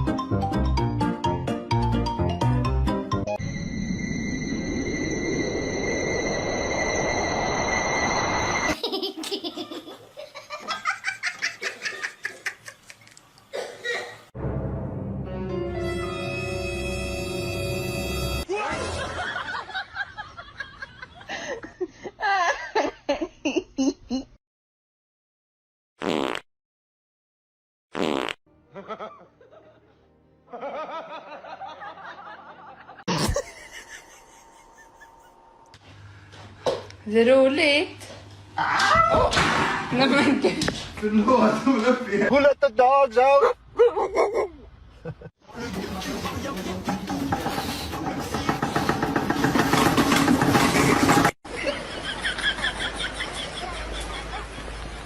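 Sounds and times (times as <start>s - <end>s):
music: 0.0s - 3.4s, 14.4s - 18.5s, 28.5s - 30.6s, 45.6s - 48.4s
high steady tone: 3.3s - 8.8s
loud sudden noise: 3.4s - 8.8s
snickering laughter: 30.6s - 35.4s
person laughing: 32.9s - 35.6s, 43.8s - 45.3s.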